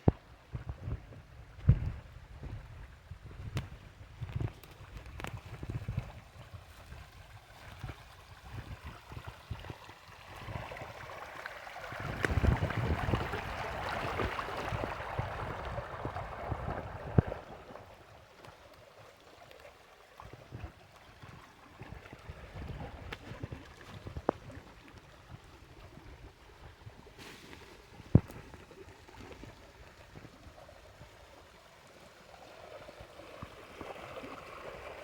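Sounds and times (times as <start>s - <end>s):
wind buffeting microphone: 11.9s - 17.9s
stream water rushing: 29.0s - 35.0s.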